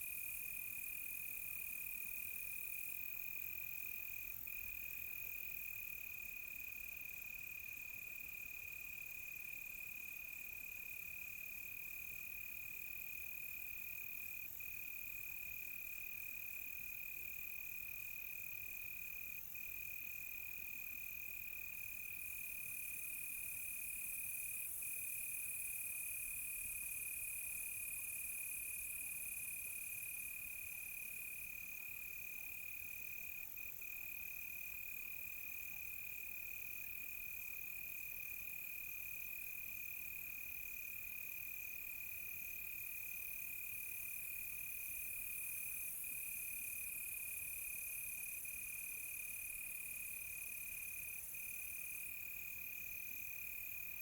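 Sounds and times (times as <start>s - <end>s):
insect chirps: 9.4s - 54.0s.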